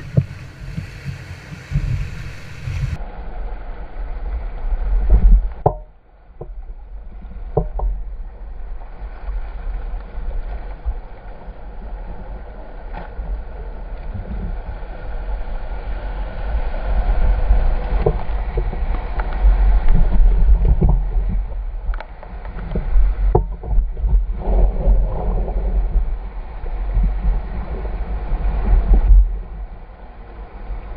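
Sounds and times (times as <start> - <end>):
river water rushing: 0.0 - 4.6
wind buffeting microphone: 0.0 - 9.6, 10.3 - 30.9.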